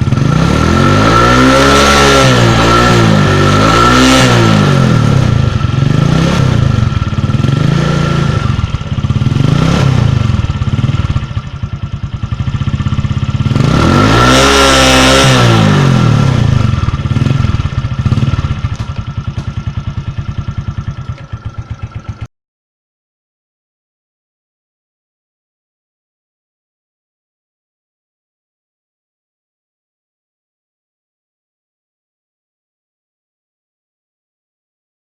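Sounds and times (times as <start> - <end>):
motorcycle engine revving: 0.0 - 22.3
motorcycle engine lumpy idle: 5.0 - 13.7, 16.4 - 22.3.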